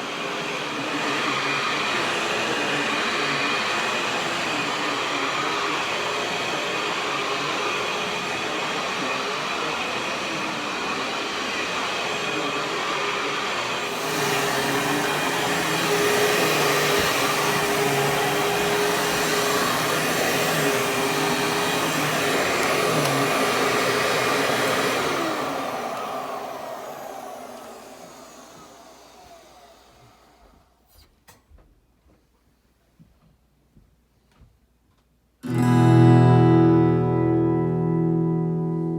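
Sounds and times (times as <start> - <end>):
vacuum cleaner running: 0.0 - 30.9
motor winding down: 13.8 - 30.6.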